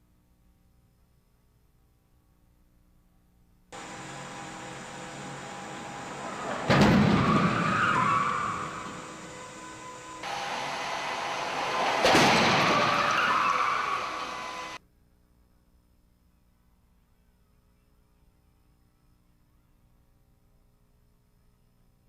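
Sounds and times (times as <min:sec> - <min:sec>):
car crash impact: 0:03.8 - 0:14.8
scraping and skidding: 0:03.8 - 0:14.8.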